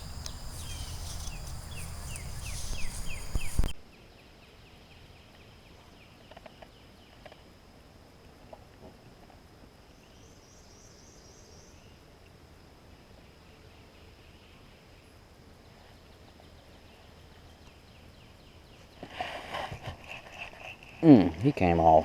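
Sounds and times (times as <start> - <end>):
birds calling: 0.0 - 3.8
high insect hum: 0.0 - 22.0.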